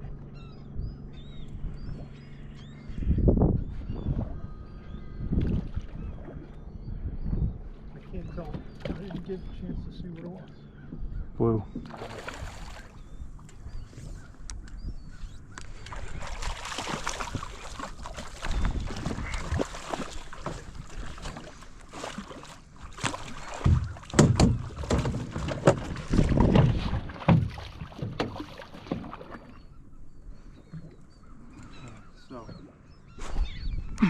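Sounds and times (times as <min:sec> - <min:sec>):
water splashing against boat hull: 0:07.9 - 0:10.5, 0:11.7 - 0:14.7, 0:15.6 - 0:29.7.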